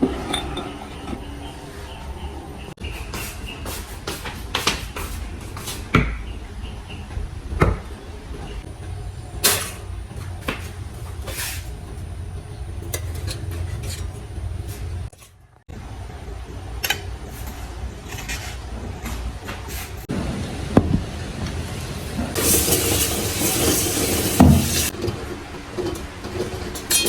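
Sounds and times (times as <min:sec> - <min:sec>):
kitchen things knocking: 0:22.4 - 0:27.0.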